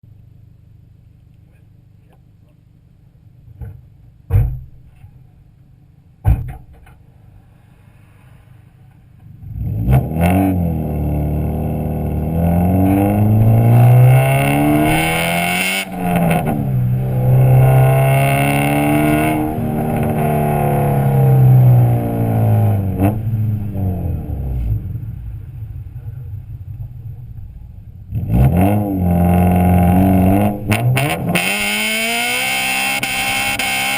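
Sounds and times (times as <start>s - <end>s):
car engine idling: 0.0s - 6.2s, 19.2s - 28.2s
car engine revving hard: 9.4s - 24.9s, 28.1s - 33.9s.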